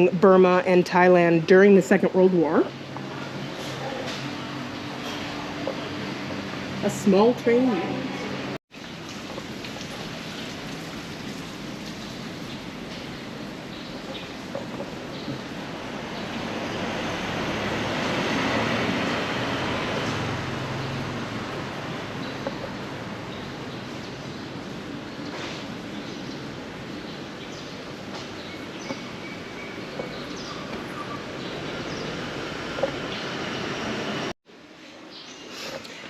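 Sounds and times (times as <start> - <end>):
motor vehicle passing by: 15.4 - 25.8, 28.7 - 34.4.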